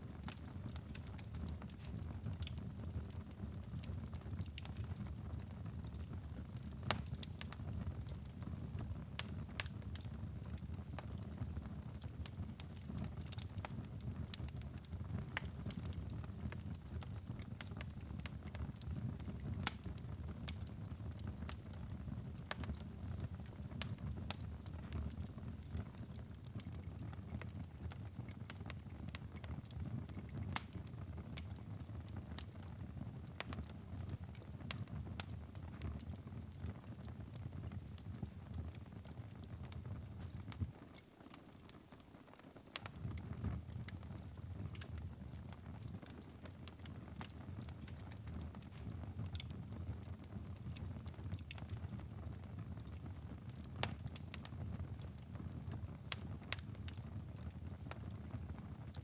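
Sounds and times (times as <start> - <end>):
low rumble of flames: 0.0 - 40.8
fire crackling and popping: 0.0 - 59.0.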